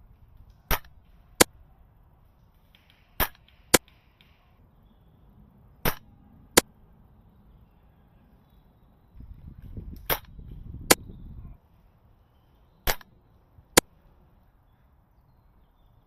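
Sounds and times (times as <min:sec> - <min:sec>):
airsoft gunfire cracks: 0:00.7 - 0:01.5, 0:02.7 - 0:04.0, 0:05.8 - 0:06.7, 0:12.9 - 0:13.1.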